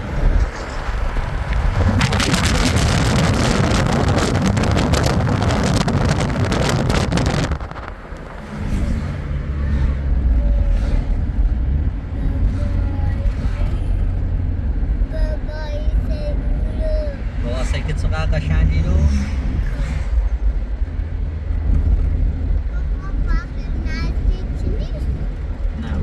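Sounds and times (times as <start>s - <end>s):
wind on microphone: 0.0s - 18.0s
low engine rumble: 0.0s - 26.0s.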